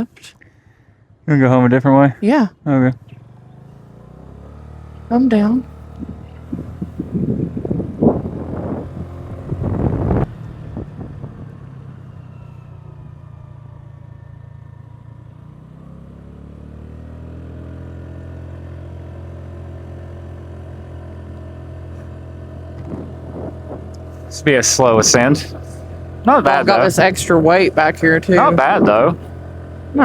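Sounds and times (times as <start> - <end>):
small motorcycle engine running: 2.7 - 30.0
loud thumps: 22.8 - 24.0.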